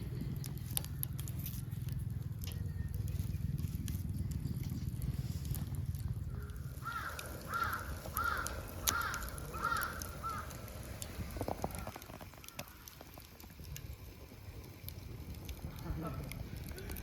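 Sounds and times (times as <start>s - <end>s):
low steady rumble: 0.0s - 17.0s
crow cawing: 6.4s - 10.6s.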